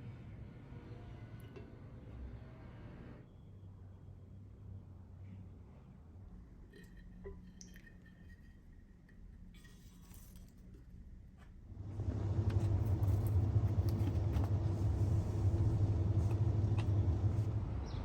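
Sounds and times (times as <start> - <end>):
low rumble: 11.8 - 18.0.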